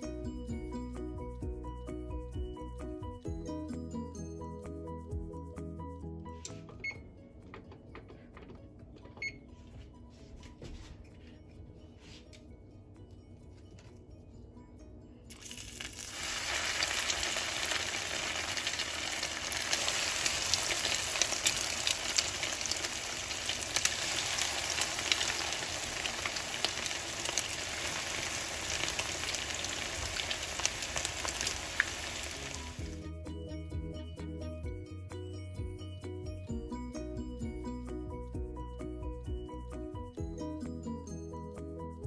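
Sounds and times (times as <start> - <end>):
food frying in hot oil: 15.3 - 33.0.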